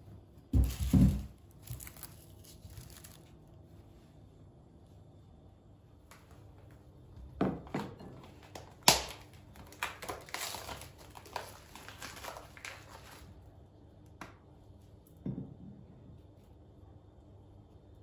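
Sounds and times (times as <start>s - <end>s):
rustling: 0.6s - 3.4s.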